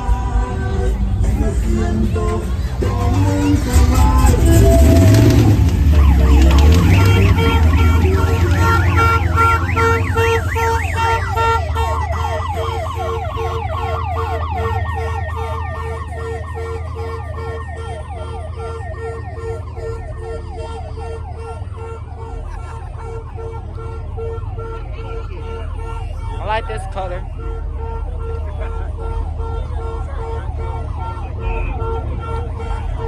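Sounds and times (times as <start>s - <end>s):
electronic siren yelping: 3.8s - 22.6s.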